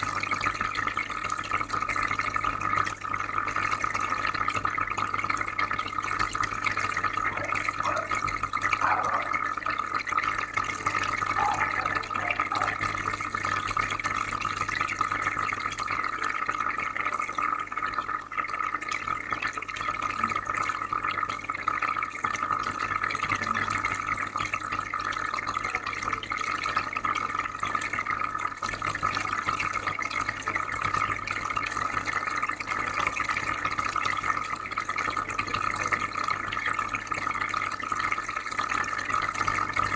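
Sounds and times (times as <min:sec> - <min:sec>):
aquarium filter hum: 0:00.0 - 0:39.9
water bubbling and trickling: 0:00.0 - 0:39.9.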